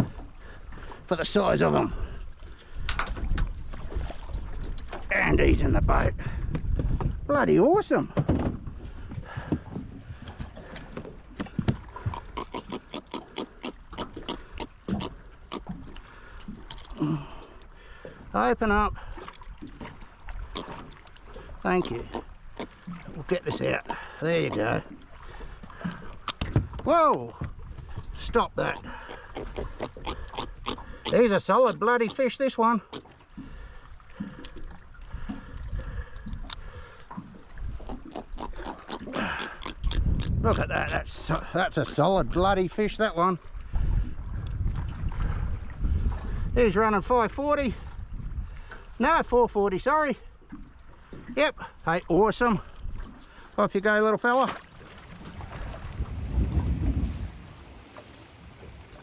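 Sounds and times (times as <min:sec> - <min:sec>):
water lapping at boat: 0:00.0 - 0:59.0
wind on microphone: 0:01.8 - 0:12.4, 0:34.6 - 0:41.3, 0:43.5 - 0:48.7, 0:54.7 - 0:59.0
fish grunting: 0:09.0 - 0:18.4, 0:19.0 - 0:26.9, 0:27.9 - 0:42.0, 0:54.7 - 0:59.0.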